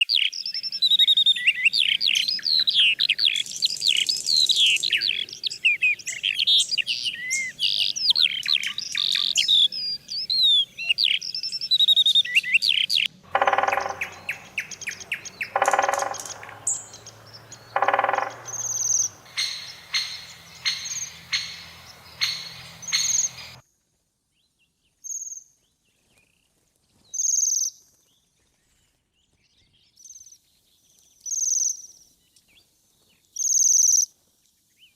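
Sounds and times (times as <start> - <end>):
birds chirping and trilling: 0.0 - 23.6
harsh low bird calls: 0.1 - 23.6
rapid clicking notes: 13.3 - 23.6.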